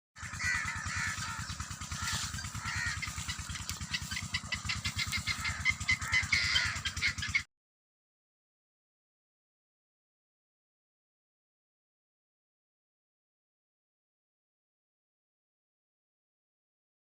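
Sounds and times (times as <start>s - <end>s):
birds chirping: 0.2s - 7.5s
engine putter: 0.2s - 7.5s.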